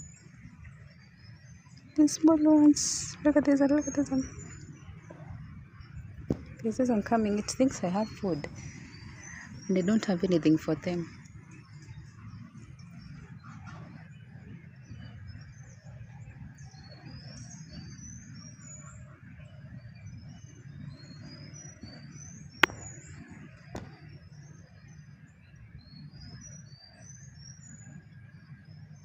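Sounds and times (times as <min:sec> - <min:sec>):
sharp click: 0:22.6 - 0:22.9.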